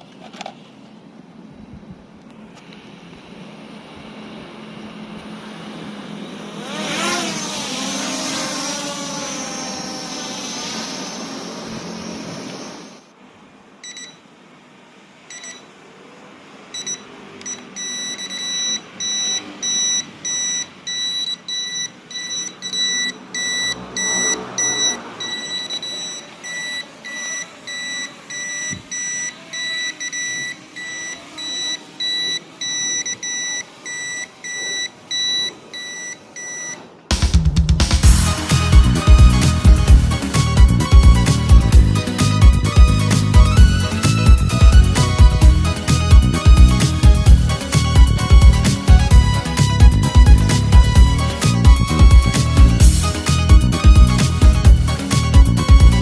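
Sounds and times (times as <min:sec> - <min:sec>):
toy drone propellers whirring: 0:05.2 - 0:13.0, 0:22.2 - 0:35.4
short electronic beeps: 0:13.8 - 0:14.2, 0:15.3 - 0:15.7, 0:16.7 - 0:36.9.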